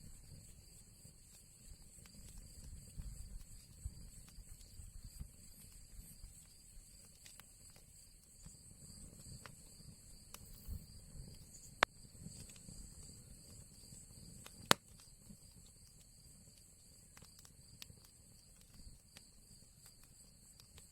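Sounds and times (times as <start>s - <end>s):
low fire rumble: 0.0s - 20.9s
wood fire crackling: 0.0s - 20.9s
sharp fire pops: 8.9s - 16.0s.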